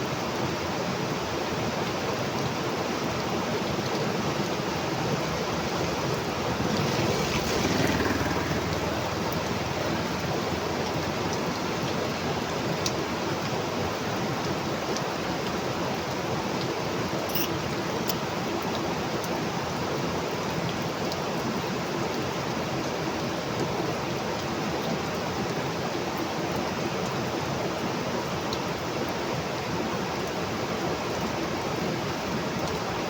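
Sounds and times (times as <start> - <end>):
heavy rain falling: 1.8 - 16.8.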